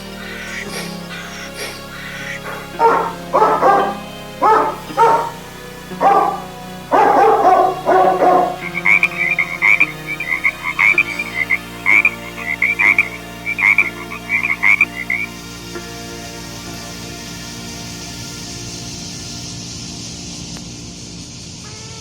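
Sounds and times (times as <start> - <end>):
high animal chirp: 0.0 - 5.4, 6.0 - 15.3
dog barking: 1.6 - 11.2.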